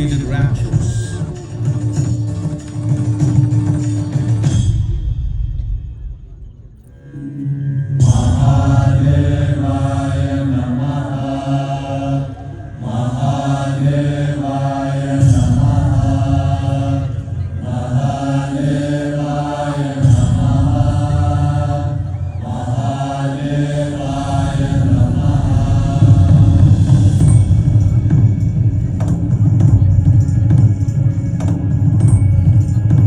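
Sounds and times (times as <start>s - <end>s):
deep low drone: 4.8s - 33.0s
person chanting a mantra: 8.0s - 27.6s.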